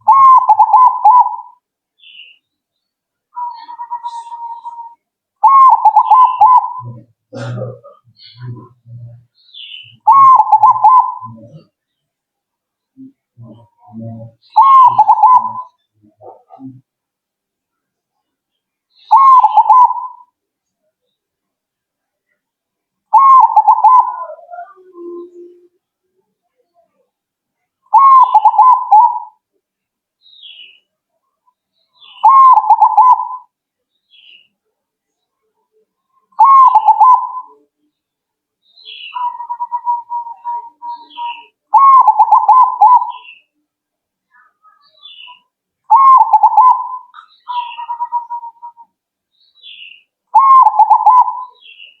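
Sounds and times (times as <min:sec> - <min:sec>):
dove cooing: 0:00.0 - 0:01.6, 0:03.4 - 0:11.8, 0:13.4 - 0:16.8, 0:19.1 - 0:20.3, 0:23.1 - 0:25.7, 0:27.9 - 0:29.4, 0:32.0 - 0:33.5, 0:36.3 - 0:37.7, 0:38.9 - 0:43.5, 0:45.0 - 0:48.9, 0:49.7 - 0:51.9
dove stuttering coos: 0:10.1 - 0:11.7, 0:13.5 - 0:16.6, 0:23.2 - 0:24.8, 0:32.2 - 0:33.4, 0:41.7 - 0:43.2, 0:45.9 - 0:48.8, 0:50.4 - 0:51.5
faint high chirps: 0:38.7 - 0:52.0.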